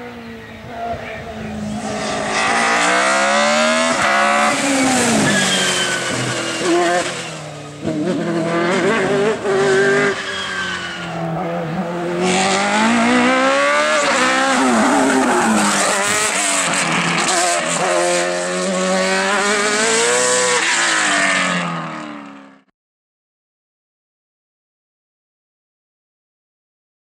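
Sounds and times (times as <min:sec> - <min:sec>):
race car engines revving: 0:00.0 - 0:22.7
tyre squeal: 0:00.7 - 0:08.0, 0:08.8 - 0:13.2.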